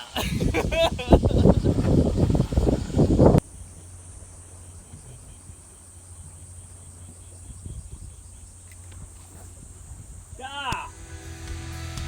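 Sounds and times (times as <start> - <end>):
insects buzzing: 0.0 - 12.0
low hum: 0.2 - 12.0.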